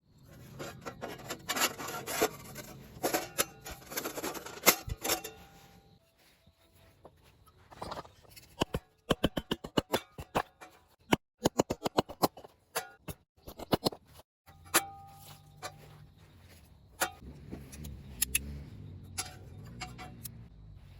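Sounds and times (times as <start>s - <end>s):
scraping and rubbing: 0.2s - 5.9s.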